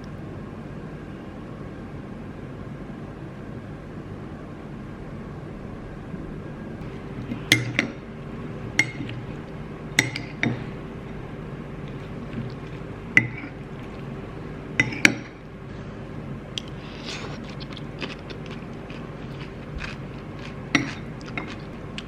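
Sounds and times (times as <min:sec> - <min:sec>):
faint steady hum: 0:00.0 - 0:22.0
glass dishware clinking: 0:07.2 - 0:08.0, 0:08.7 - 0:09.4, 0:10.0 - 0:10.8, 0:12.3 - 0:13.6, 0:14.8 - 0:15.4.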